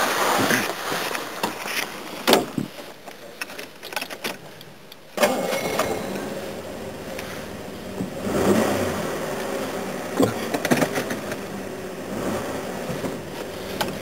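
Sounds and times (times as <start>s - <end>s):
car engine starting and running: 5.2s - 14.0s.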